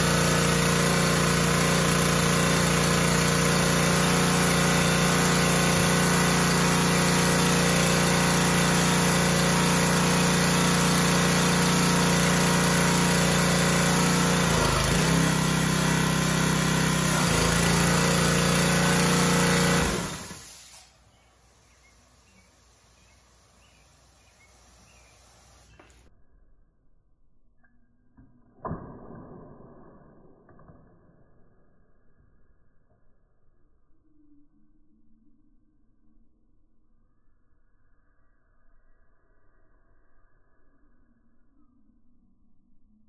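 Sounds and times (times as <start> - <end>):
small gasoline engine running: 0.0 - 26.0
engine shutting off: 0.0 - 26.1.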